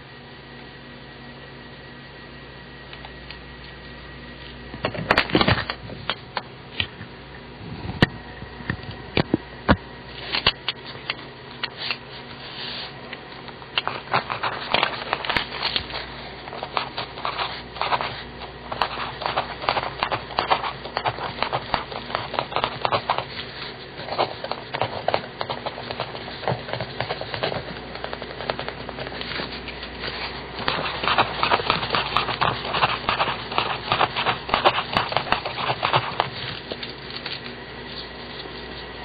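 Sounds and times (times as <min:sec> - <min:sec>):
pencil scratching on paper: 0:13.8 - 0:37.0.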